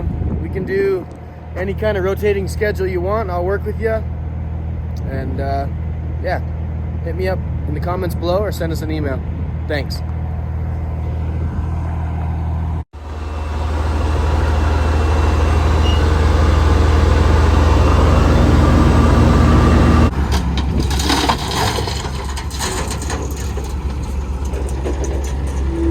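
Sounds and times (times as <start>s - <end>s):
truck diesel engine running: 9.5s - 25.9s
noisy rumble with knocks: 13.9s - 25.9s.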